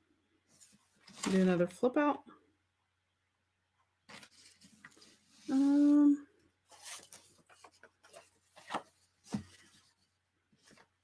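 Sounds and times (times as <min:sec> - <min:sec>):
paper rustling and tapping: 0:06.8 - 0:09.9.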